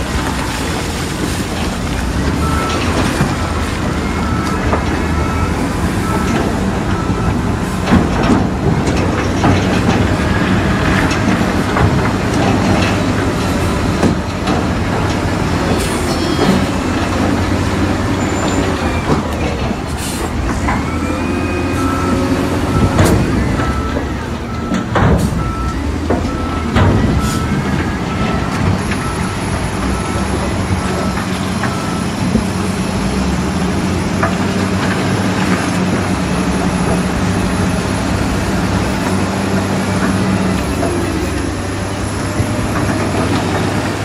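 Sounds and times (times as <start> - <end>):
diesel engine under load: 0.0 - 44.0
steel tracks clanking and squealing: 0.0 - 44.0
reversing alarm beeping: 2.3 - 11.5, 15.7 - 33.3.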